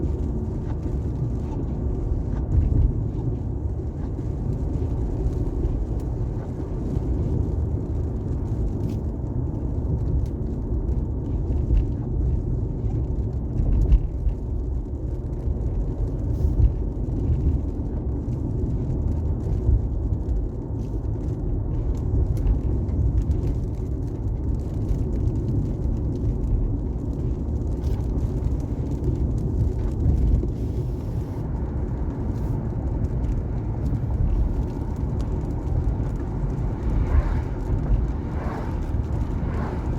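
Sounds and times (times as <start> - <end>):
tyres and engine rumble: 16.2 - 39.9.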